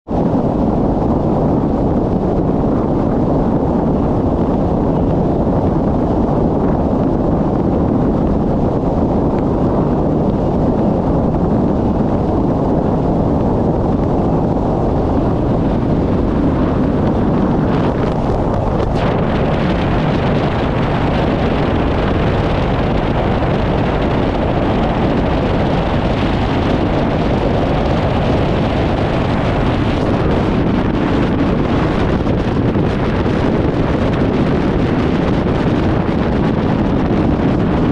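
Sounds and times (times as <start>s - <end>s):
wind buffeting microphone: 0.0s - 37.9s
road noise: 13.6s - 30.4s.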